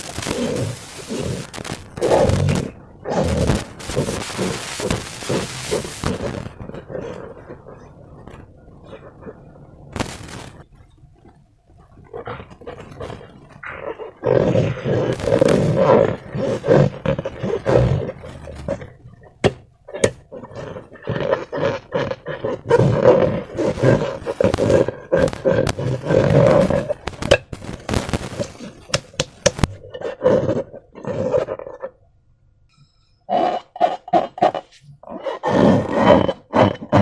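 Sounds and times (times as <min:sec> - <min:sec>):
sharp clicks and pops: 0:00.0 - 0:09.1, 0:09.9 - 0:13.8, 0:15.1 - 0:21.0, 0:23.4 - 0:29.9
wet rubbery squishing: 0:00.0 - 0:32.0.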